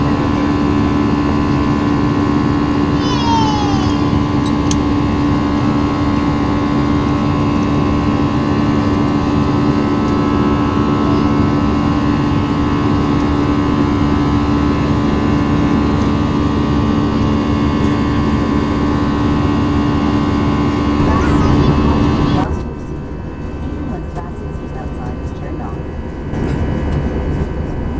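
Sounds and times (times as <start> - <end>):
jet engine cabin drone: 21.0 - 27.9.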